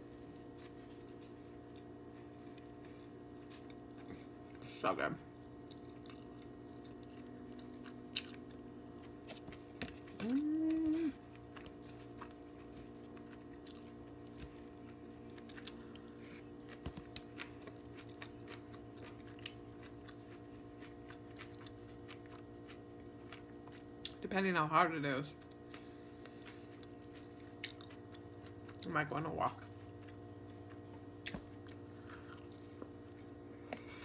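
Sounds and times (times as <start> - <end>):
soft chewing with smacks: 0.1 - 4.7, 5.3 - 24.2, 25.3 - 34.0
person humming: 10.1 - 11.2.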